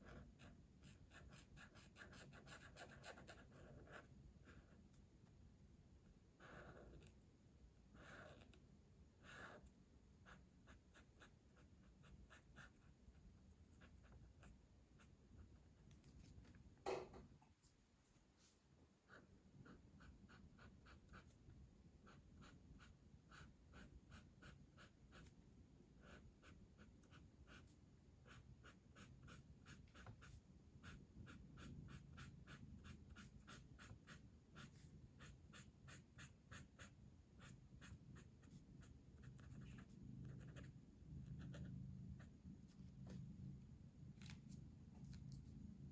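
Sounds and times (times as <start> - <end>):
colouring tool scratching paper: 26.0 - 40.7.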